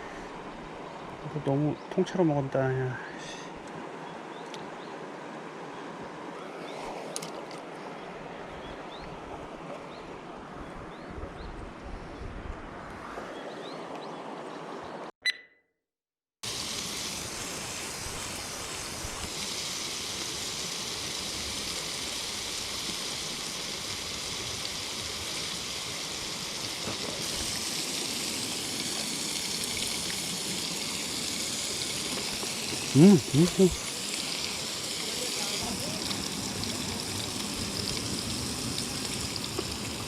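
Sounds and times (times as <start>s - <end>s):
stream rushing over rocks: 16.5s - 40.0s.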